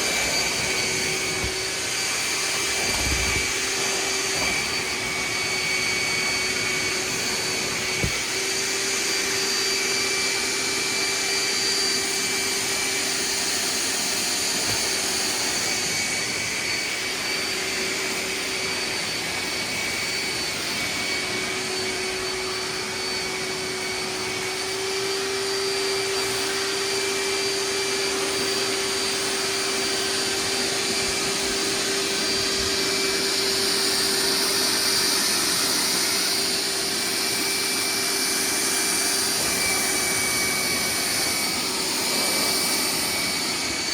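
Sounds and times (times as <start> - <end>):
rushing air: 0.0 - 6.4
wet dry vacuum motor whine: 0.0 - 43.9.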